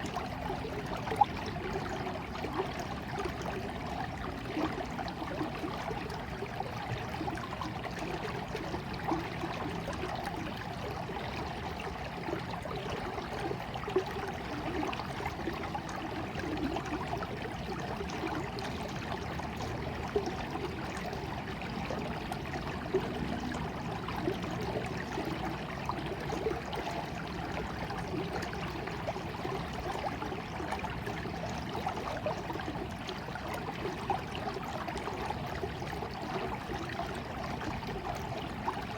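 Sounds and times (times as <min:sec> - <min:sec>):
stream babbling over stones: 0:00.0 - 0:38.9.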